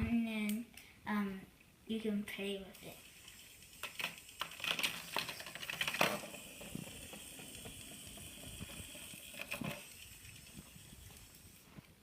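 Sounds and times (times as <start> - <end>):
faint steady whir: 2.3 - 12.0
plastic toy parts clicking: 2.8 - 11.4.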